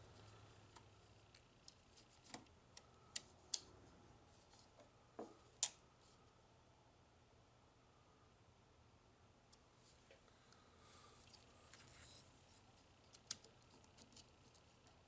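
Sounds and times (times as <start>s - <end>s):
small plastic parts clicking: 13.1s - 14.6s.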